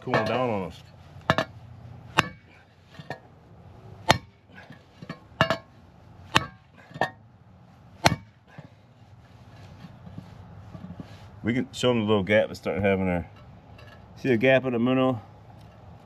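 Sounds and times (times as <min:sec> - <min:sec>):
hammer striking steel: 0:02.2 - 0:02.6, 0:04.0 - 0:04.4, 0:06.3 - 0:07.2, 0:08.0 - 0:08.4.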